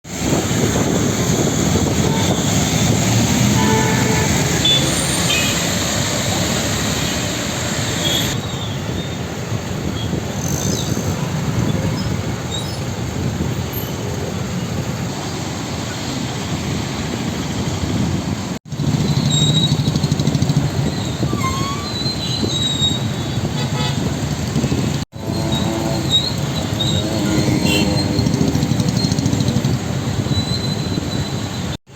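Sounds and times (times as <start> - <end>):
traffic engine and road noise: 0.0 - 31.9
vehicle horns tooting: 1.9 - 5.9, 21.2 - 29.2.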